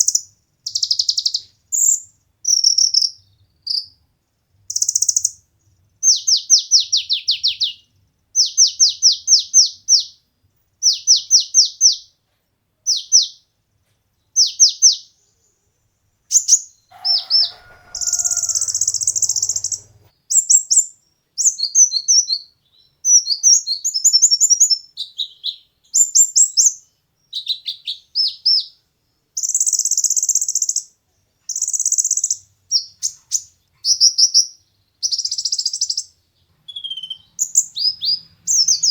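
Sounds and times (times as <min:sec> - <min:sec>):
sunbird chirps and trills: 0:16.3 - 0:28.8, 0:29.4 - 0:38.9.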